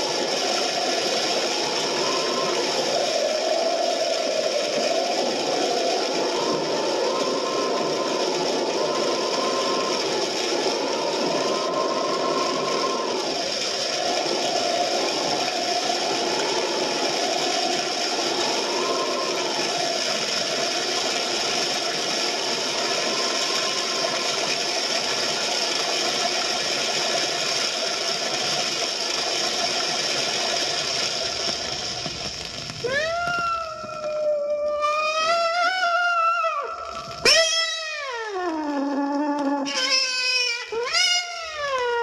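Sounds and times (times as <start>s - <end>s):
faint wavering whine: 0.0s - 32.2s
cat yowling: 32.9s - 42.0s.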